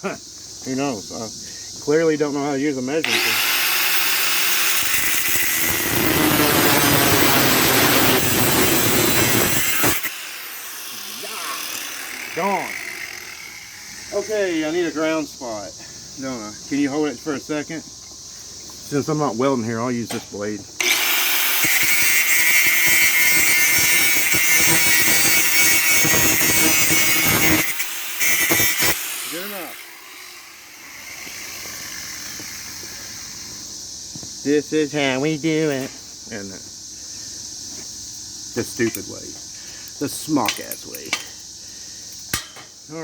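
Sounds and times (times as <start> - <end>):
power tool cutting steel: 3.0 - 15.2, 20.8 - 33.6, 38.7 - 39.1, 40.1 - 41.3.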